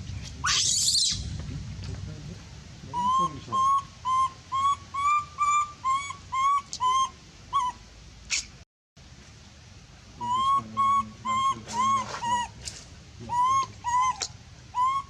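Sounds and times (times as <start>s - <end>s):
animal high squeal: 0.4s - 1.2s, 10.2s - 12.5s, 13.3s - 15.0s
animal whistle-like calls: 0.4s - 1.2s, 2.9s - 8.5s, 10.2s - 12.6s, 13.3s - 15.0s.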